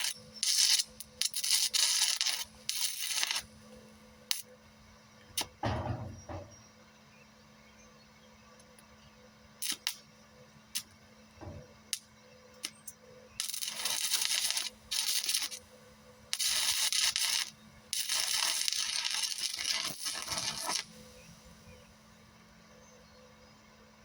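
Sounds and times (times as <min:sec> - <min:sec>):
welding rod scratching clicks: 0:00.0 - 0:03.5, 0:11.9 - 0:15.6, 0:16.3 - 0:21.0
welding arc crackling and sizzling: 0:00.0 - 0:04.5, 0:09.6 - 0:10.1, 0:11.9 - 0:21.8.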